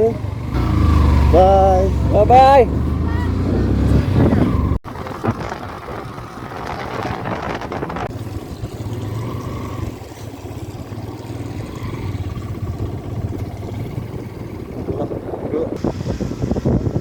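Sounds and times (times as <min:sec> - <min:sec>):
motorcycle engine running: 0:00.0 - 0:17.0
wind noise on microphone: 0:02.7 - 0:10.1, 0:11.9 - 0:17.0.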